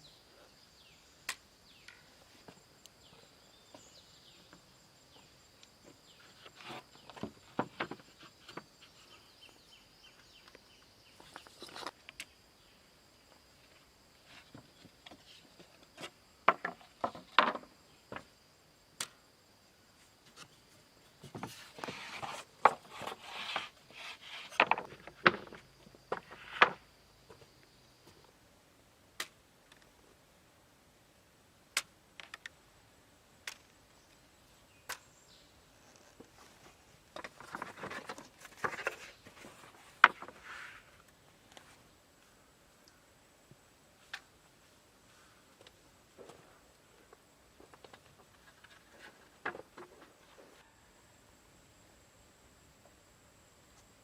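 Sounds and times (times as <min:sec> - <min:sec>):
wooden sticks knocking and clattering: 0:14.5 - 0:18.3, 0:24.5 - 0:26.8, 0:40.0 - 0:40.4, 0:47.6 - 0:50.1.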